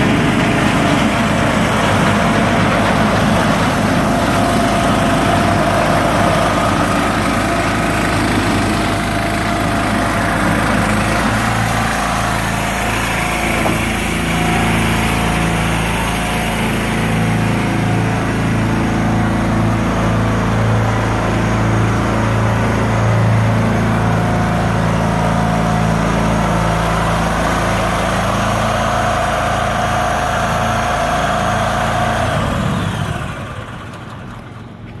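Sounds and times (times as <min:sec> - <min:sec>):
small engine running: 0:00.0 - 0:35.0.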